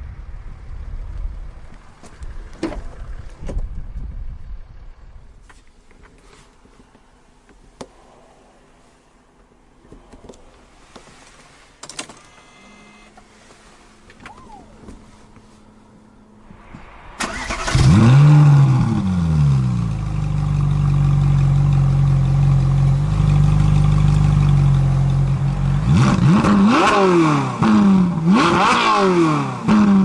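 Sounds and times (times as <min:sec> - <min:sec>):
engine starting and idling: 0:17.1 - 0:20.4.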